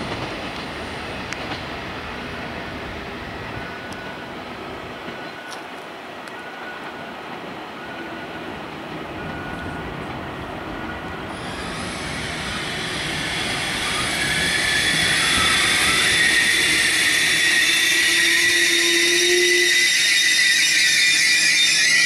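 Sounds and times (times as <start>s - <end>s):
high-speed train passing: 0.0s - 22.0s
high-pitched whine: 11.3s - 22.0s.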